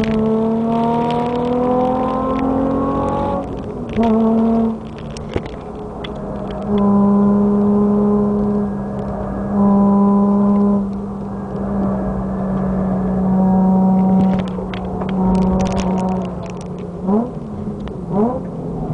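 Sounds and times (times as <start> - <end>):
engine droning in car cabin: 0.0 - 18.9
rattles and knocks inside car: 3.1 - 7.0, 14.0 - 18.0.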